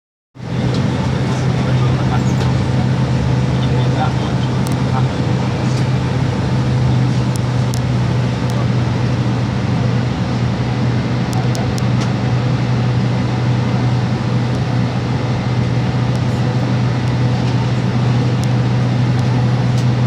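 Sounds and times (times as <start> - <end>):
jet engines humming in cabin: 0.4 - 20.0.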